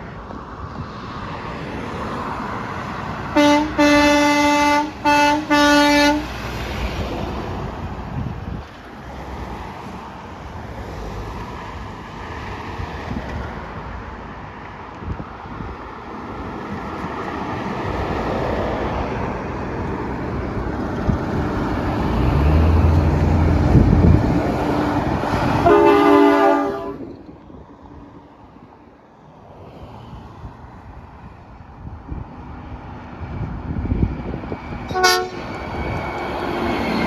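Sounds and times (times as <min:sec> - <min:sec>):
heavy truck passing: 0:00.0 - 0:37.0
truck horn blast: 0:03.3 - 0:06.4, 0:25.3 - 0:27.1, 0:34.9 - 0:35.5.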